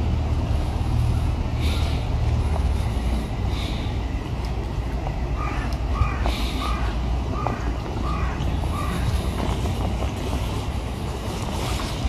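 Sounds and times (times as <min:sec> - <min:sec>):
bird calls: 0:05.4 - 0:09.6.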